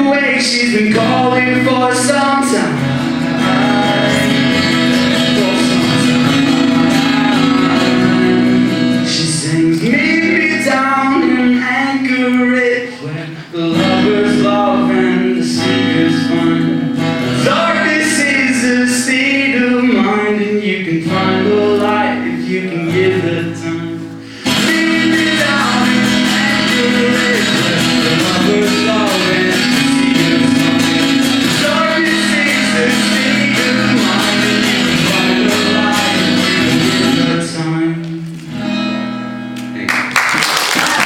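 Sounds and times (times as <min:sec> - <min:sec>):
man singing: 0:00.0 - 0:38.4
acoustic guitar strumming: 0:00.0 - 0:40.1.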